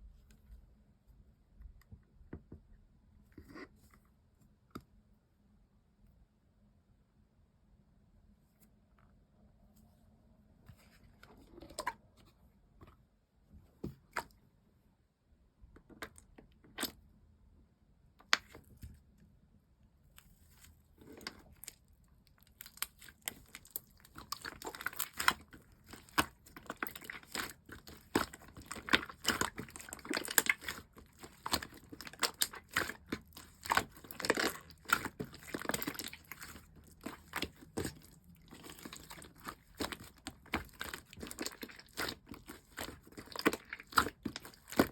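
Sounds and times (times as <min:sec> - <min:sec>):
slime sticky crackling and popping: 0:22.5 - 0:44.9.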